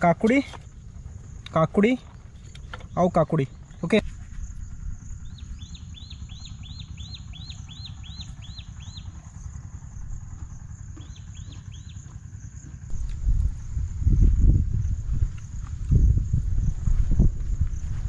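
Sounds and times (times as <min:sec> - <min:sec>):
insect hiss: 0:00.0 - 0:18.0
wind rumble on microphone: 0:00.0 - 0:18.0
bird whistling repeated notes: 0:04.8 - 0:09.2.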